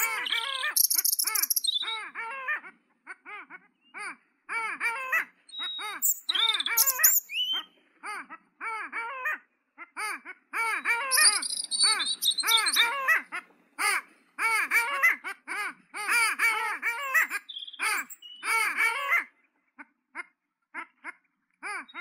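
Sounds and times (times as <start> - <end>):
small bird trilling: 0.0 - 2.1, 5.5 - 7.7, 10.8 - 13.2, 17.1 - 18.6
harsh bird calls: 0.0 - 2.6, 4.9 - 8.1, 10.6 - 15.2, 16.1 - 19.2.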